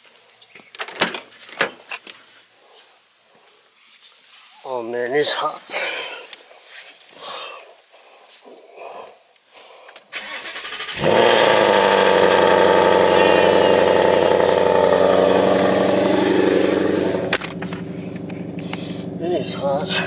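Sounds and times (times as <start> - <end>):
starter motor cranking: 10.2 - 19.0
car engine idling loudly: 11.0 - 20.0.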